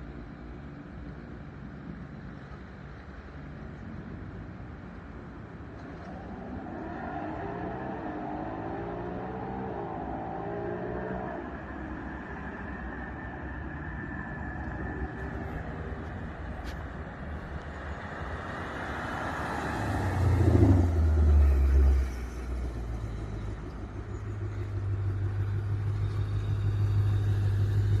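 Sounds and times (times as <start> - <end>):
car engine deep rumble: 14.3 - 28.0.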